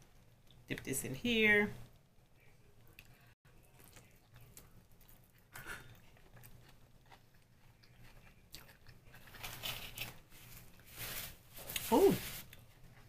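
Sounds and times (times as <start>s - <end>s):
chewing food close-up: 2.8s - 10.2s.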